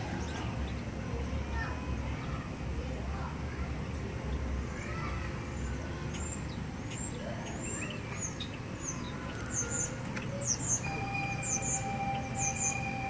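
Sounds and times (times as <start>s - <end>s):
small birds chirping: 5.5s - 13.0s.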